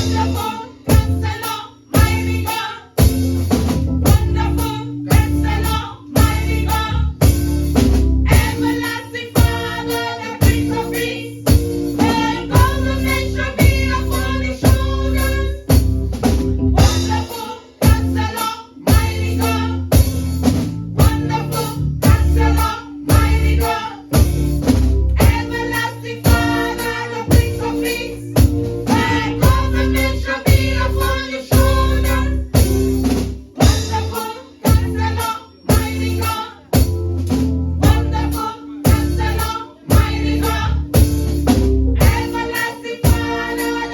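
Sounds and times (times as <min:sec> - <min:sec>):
drum kit beating: 0:00.0 - 0:43.9
choir singing: 0:08.3 - 0:15.7, 0:16.8 - 0:19.7, 0:21.1 - 0:24.1, 0:25.2 - 0:32.4, 0:33.6 - 0:36.7, 0:37.8 - 0:40.8, 0:42.0 - 0:43.9.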